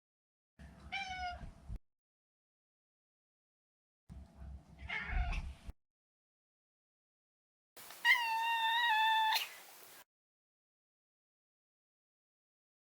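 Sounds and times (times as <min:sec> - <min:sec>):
cat meowing: 0:04.9 - 0:05.5, 0:08.0 - 0:09.7.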